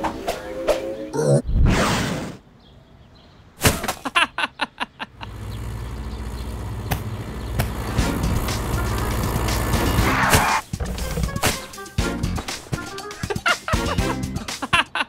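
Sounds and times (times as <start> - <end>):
small car engine running: 5.1 - 11.4.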